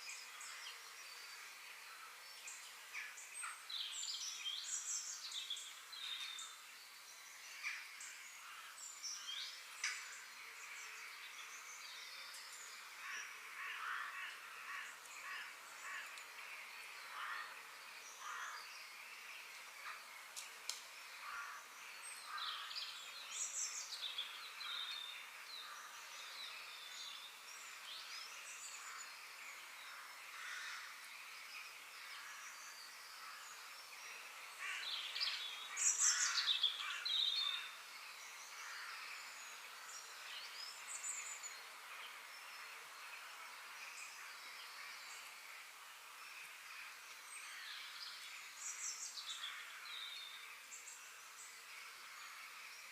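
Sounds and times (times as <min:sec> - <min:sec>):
steady background hiss: 0:00.0 - 0:52.9
birds chirping and calling: 0:32.1 - 0:42.2.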